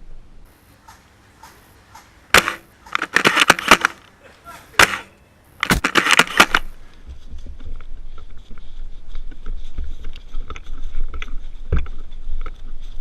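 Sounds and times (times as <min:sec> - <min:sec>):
sharp clicks and knocks: 0:00.8 - 0:04.2, 0:04.8 - 0:06.7.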